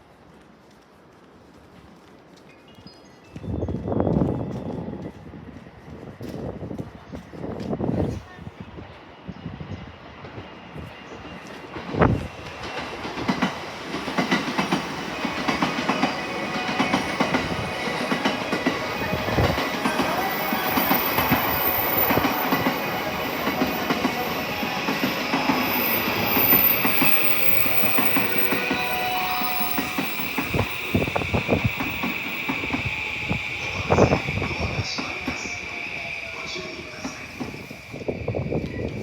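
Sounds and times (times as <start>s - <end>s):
train wheels clicking over rails: 10.1s - 39.0s.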